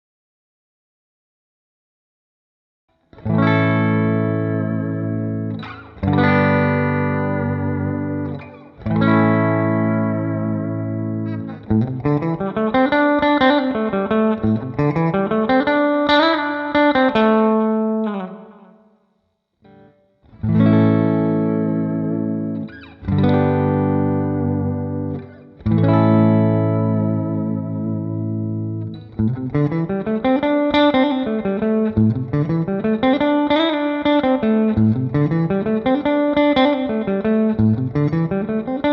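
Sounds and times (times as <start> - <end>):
guitar lead notes with bends: 2.9 - 19.0, 19.6 - 38.9
distorted electric guitar chords: 3.2 - 18.8, 19.7 - 38.9.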